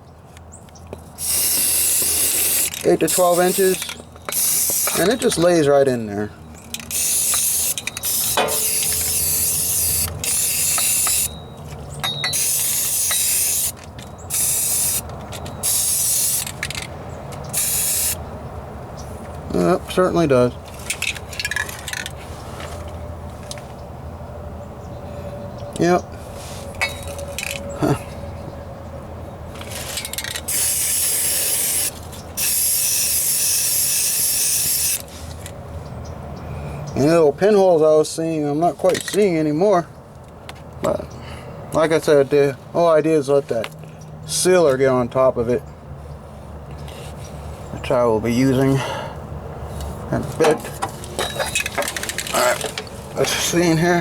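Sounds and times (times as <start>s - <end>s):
aerosol spray can hissing: 1.2s - 5.0s, 6.9s - 11.3s, 14.3s - 15.0s, 17.5s - 18.2s, 30.5s - 35.0s.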